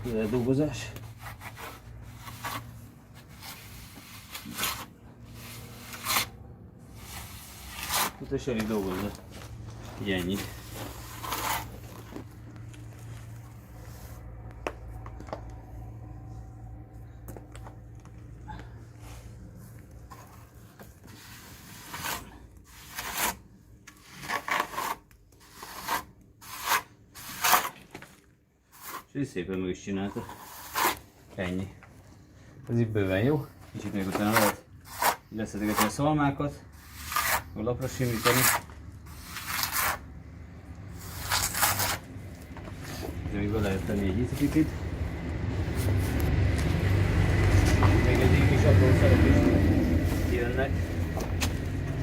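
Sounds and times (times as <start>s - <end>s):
hand tool scraping plaster: 0.0s - 12.3s, 20.1s - 29.2s, 29.9s - 31.6s, 33.0s - 40.1s, 40.8s - 44.8s.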